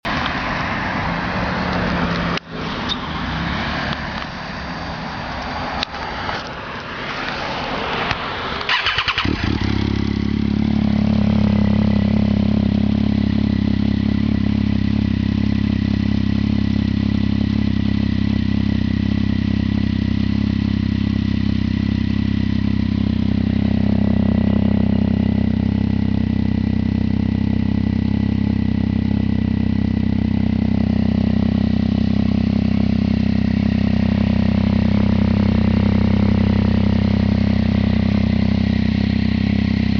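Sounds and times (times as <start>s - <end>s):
engine cranking: 8.7s - 9.8s
motorcycle engine idling loudly: 8.7s - 39.9s.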